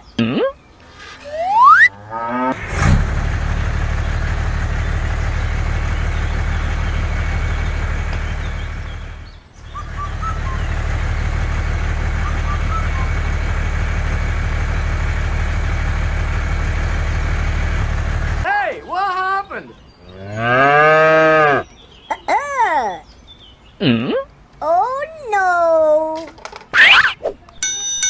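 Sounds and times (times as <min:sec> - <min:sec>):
low engine drone: 0:01.0 - 0:18.5.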